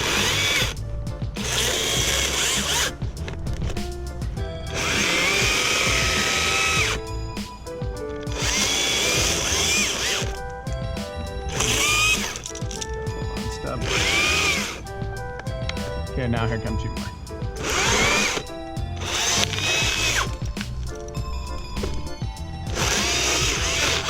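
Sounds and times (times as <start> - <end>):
electric chainsaw cutting branches: 0.0 - 0.8, 1.4 - 3.0, 4.7 - 7.1, 8.2 - 10.4, 11.5 - 12.6, 13.6 - 14.8, 17.6 - 20.4, 22.7 - 24.0.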